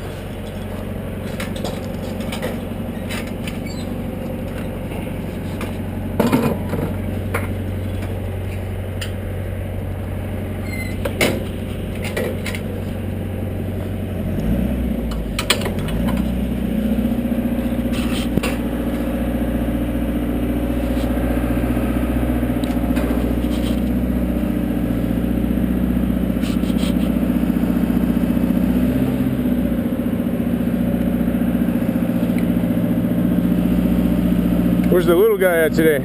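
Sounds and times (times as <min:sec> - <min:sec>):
knocks and clanks: 0:00.0 - 0:09.2, 0:10.8 - 0:12.9, 0:17.9 - 0:18.7
engine running: 0:00.0 - 0:36.0.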